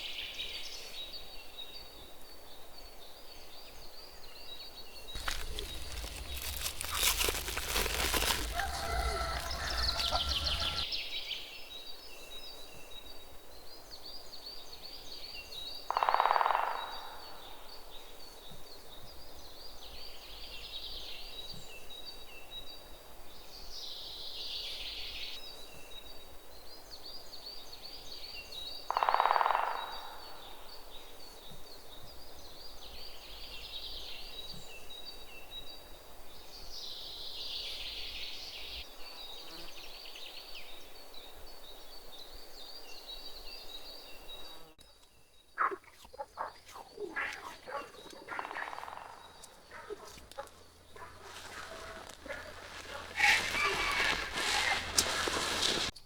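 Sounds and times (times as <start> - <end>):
birds chirping: 5.2 - 10.8, 45.6 - 55.9
insects chirring: 5.2 - 10.8, 45.6 - 55.9
rustling noise: 5.2 - 10.8, 49.4 - 56.0
short loud calls: 5.2 - 10.8, 49.6 - 55.9.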